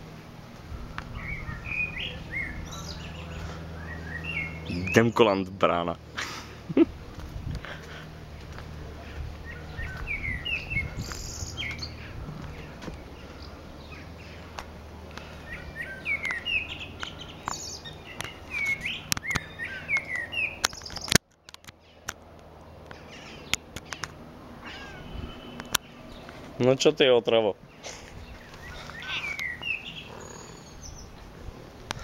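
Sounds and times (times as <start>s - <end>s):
garden birds singing: 0.0s - 32.0s
sharp clicks: 17.0s - 24.2s, 25.6s - 25.9s.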